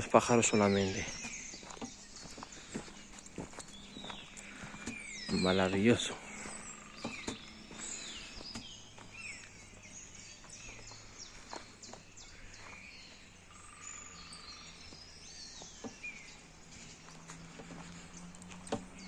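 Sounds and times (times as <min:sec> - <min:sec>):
songbirds chirping: 0:00.0 - 0:19.0.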